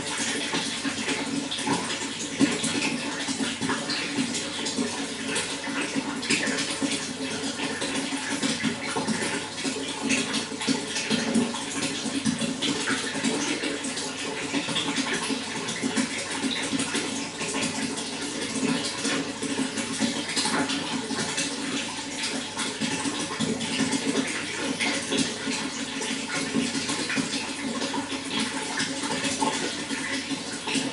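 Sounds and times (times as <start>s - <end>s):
running water gurgling and splashing: 0.0s - 30.9s.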